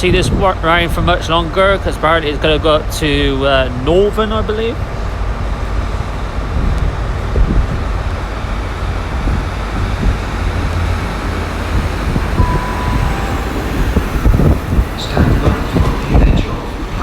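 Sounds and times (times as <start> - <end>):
diesel train engine rumble: 0.0 - 17.0
short high beep: 12.4 - 14.4.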